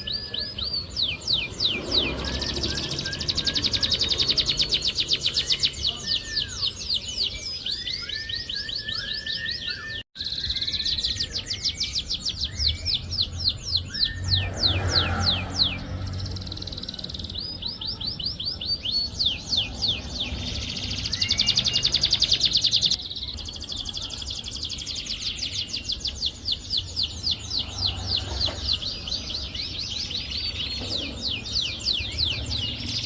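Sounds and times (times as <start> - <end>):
canary singing: 0.0 - 33.0.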